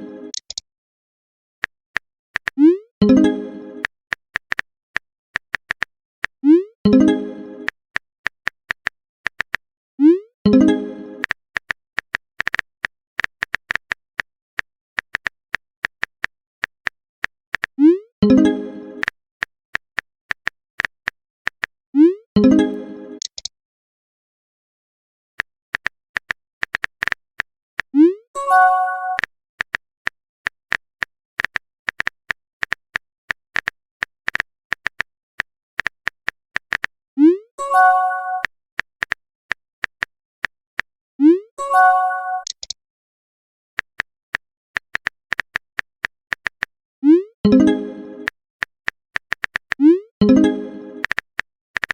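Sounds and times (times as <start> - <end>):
keyboard tapping clicks: 0.3 - 0.6, 5.4 - 5.9, 15.0 - 17.0, 42.4 - 42.8, 44.8 - 46.7, 47.5 - 51.9.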